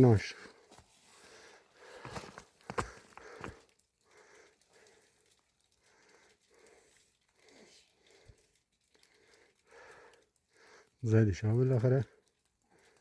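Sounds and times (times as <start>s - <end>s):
faint soft rustles: 0.1s - 13.0s.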